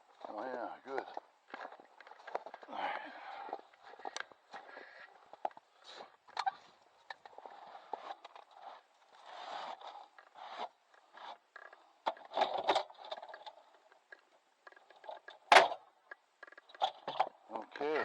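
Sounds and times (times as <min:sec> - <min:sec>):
scraping and scooping ash: 0:01.8 - 0:11.7.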